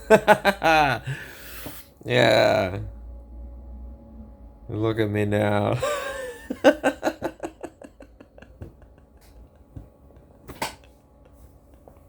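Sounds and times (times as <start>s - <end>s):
man laughing: 0.0s - 1.3s, 5.7s - 10.4s.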